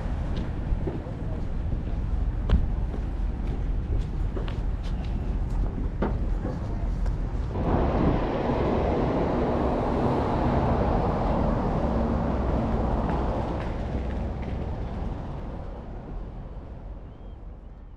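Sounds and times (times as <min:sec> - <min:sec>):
vehicle running: 0:07.4 - 0:17.0.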